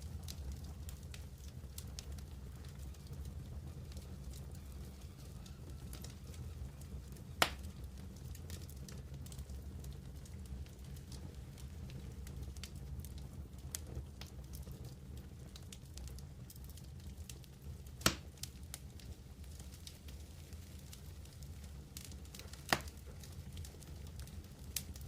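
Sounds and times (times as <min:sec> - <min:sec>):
campfire crackling: 0:00.0 - 0:25.0
campfire popping: 0:00.0 - 0:25.0
low steady fire rumble: 0:00.0 - 0:25.0.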